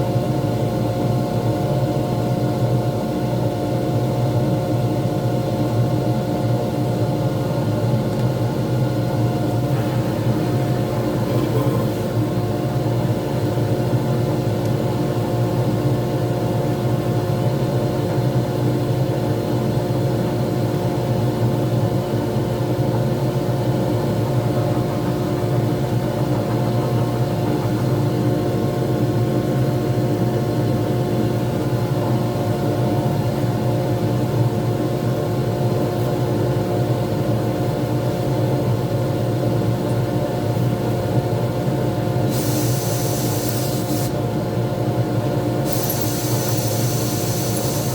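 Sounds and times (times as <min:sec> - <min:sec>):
wood lathe motor humming: 0:09.5 - 0:12.8.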